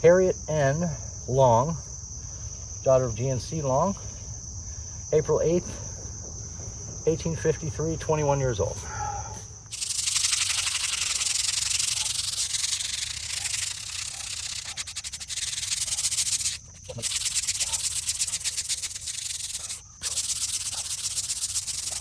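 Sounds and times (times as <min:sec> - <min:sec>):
stiff brush scrubbing stone: 0:09.7 - 0:22.0.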